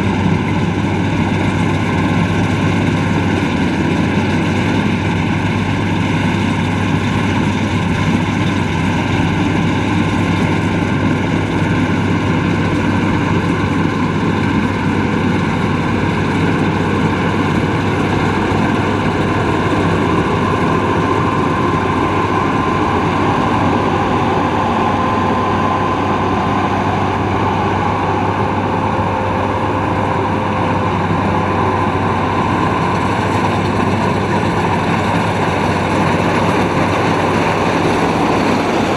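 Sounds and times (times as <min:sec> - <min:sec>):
combine harvester engine hum: 0:00.0 - 0:38.9
faint high whine: 0:14.7 - 0:38.9.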